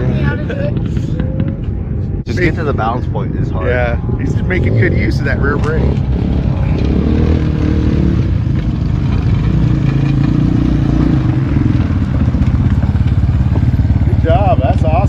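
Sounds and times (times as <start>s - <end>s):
dirt bike engine at low revs: 4.0s - 15.0s.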